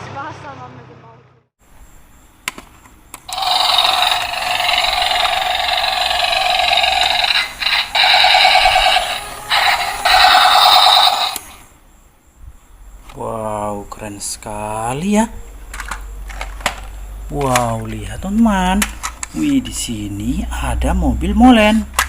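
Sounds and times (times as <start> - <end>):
toy buzzy pulsing sound effect: 3.3 - 11.6.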